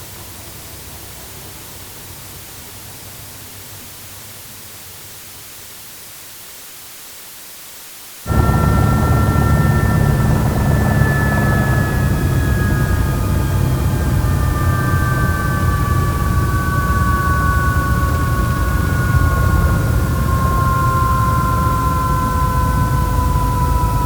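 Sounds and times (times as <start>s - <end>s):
faint rushing noise: 8.3s - 20.8s
helicopter turbine whine and rumble: 8.3s - 24.0s.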